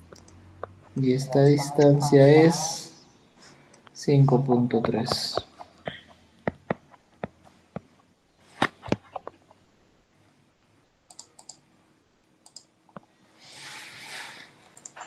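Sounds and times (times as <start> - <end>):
mouse and keyboard clicks: 11.1 - 11.6.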